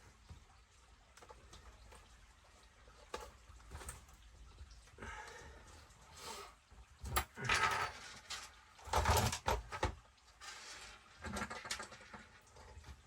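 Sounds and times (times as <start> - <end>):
parts scraping and rattling: 7.1 - 13.0.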